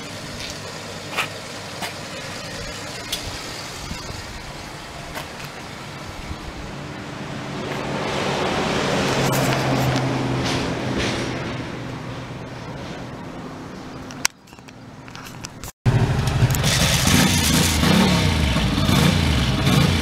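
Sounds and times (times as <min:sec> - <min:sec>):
vehicle engine running: 0:00.0 - 0:07.6, 0:15.9 - 0:20.0.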